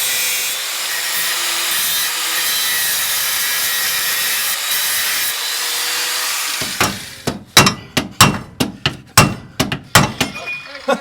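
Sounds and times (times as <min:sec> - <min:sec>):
abrasive cutting of steel: 0:00.0 - 0:08.6.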